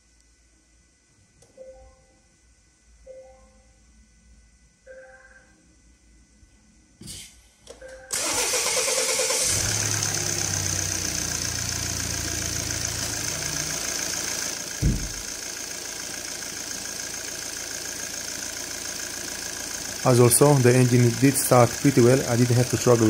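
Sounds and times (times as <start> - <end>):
diesel engine starting and idling: 8.1 - 23.0
short thump: 14.8 - 15.3.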